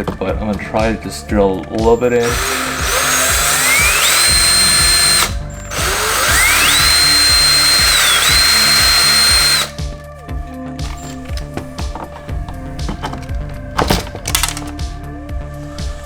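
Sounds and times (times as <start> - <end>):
electric drill whining: 2.1 - 9.8, 10.8 - 14.8.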